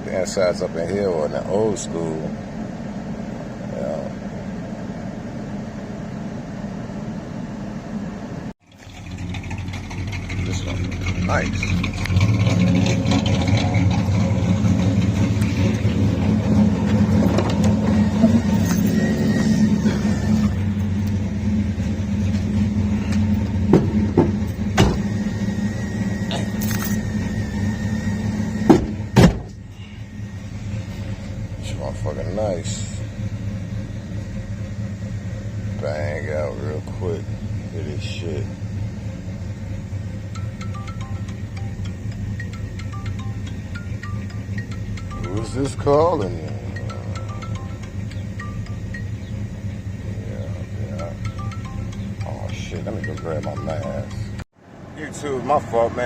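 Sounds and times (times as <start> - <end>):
car engine and road noise: 0.0 - 56.0
low engine starting up: 8.6 - 33.4.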